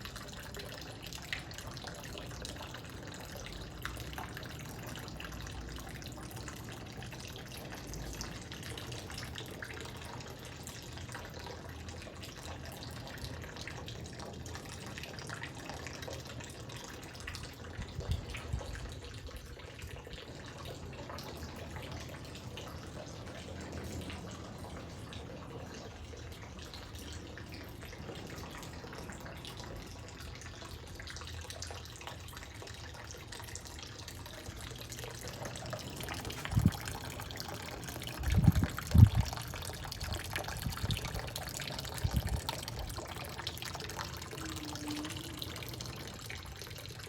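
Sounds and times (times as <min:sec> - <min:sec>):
water trickling in a water feature: 0:00.0 - 0:47.0.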